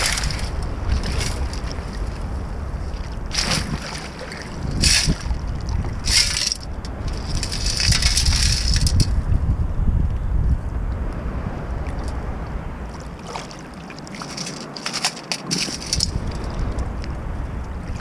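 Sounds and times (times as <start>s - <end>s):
stones rattling in basket: 0.0s - 1.6s, 4.8s - 5.2s, 6.0s - 9.1s, 14.2s - 16.2s
surf rumble: 0.0s - 18.0s
wind on microphone: 0.0s - 18.0s.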